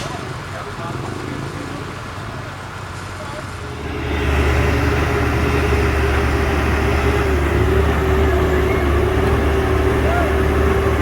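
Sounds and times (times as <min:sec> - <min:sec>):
truck diesel engine running: 0:03.6 - 0:11.0.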